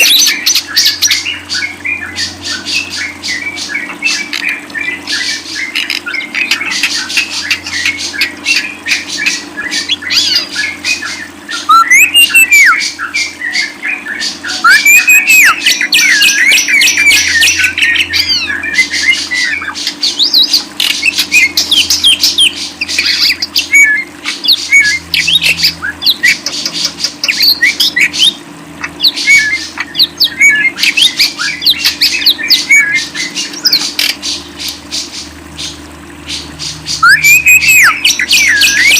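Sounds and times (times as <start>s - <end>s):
cage birds chattering and squawking: 0.0s - 38.9s
low steady hum: 0.0s - 38.9s.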